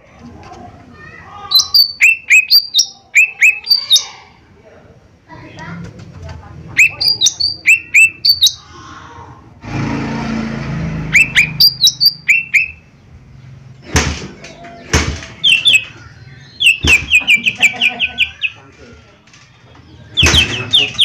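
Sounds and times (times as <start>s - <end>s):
bird whistled chirps: 1.5s - 4.2s, 6.8s - 8.6s, 11.1s - 12.9s, 15.4s - 18.6s, 20.1s - 21.0s.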